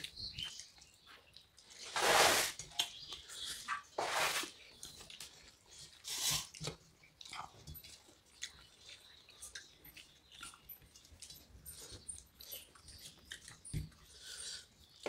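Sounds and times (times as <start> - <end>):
chewing and lip smacks: 4.6 - 15.0.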